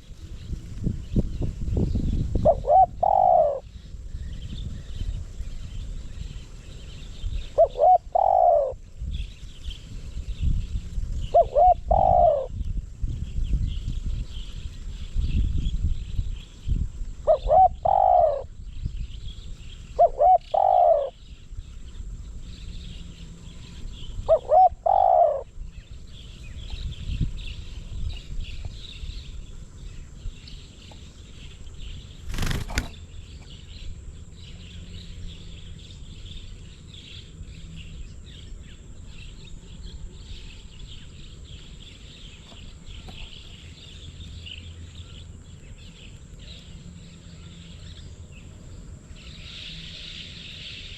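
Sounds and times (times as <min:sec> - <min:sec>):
dove cooing: 0:02.3 - 0:03.7, 0:07.4 - 0:08.8, 0:11.2 - 0:12.6, 0:17.2 - 0:18.6, 0:20.0 - 0:21.2, 0:23.7 - 0:25.5
high chirring of insects: 0:14.2 - 0:50.9.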